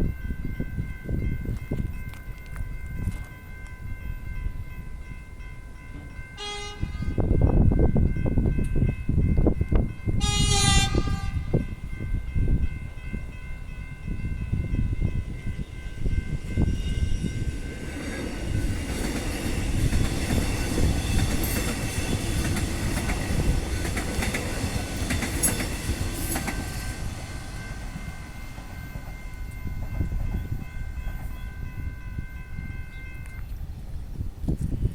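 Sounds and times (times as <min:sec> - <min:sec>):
crossing warning alarm ringing: 0:00.0 - 0:33.6
train wheels clicking over rail joints: 0:17.5 - 0:31.4.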